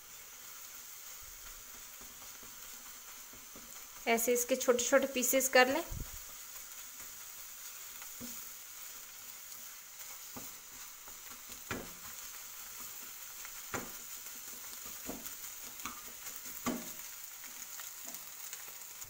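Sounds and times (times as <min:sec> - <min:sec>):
eggs sizzling in a frying pan: 0:00.0 - 0:19.0
spatula knocking against pan: 0:11.4 - 0:12.0, 0:13.7 - 0:14.0, 0:14.9 - 0:17.0.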